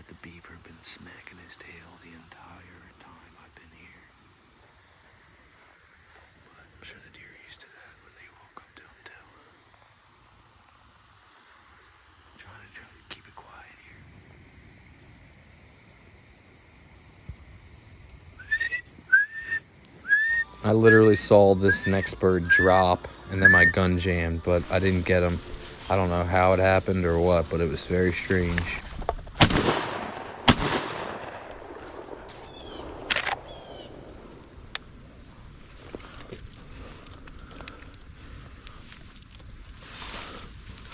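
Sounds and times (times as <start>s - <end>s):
wood duck whistled squeals: 18.4s - 23.9s
shotgun blast echo: 29.4s - 34.0s
sharp click: 33.0s - 33.5s.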